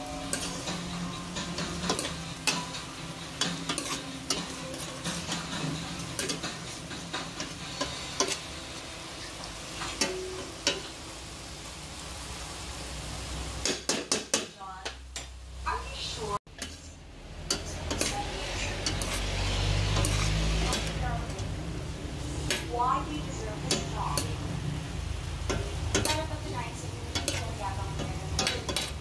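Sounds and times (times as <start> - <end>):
meat and shrimp sizzling in a pot: 0.0 - 29.0
metal spoon scraping a pot: 0.2 - 8.6, 16.5 - 21.5, 25.4 - 26.4, 27.0 - 29.0.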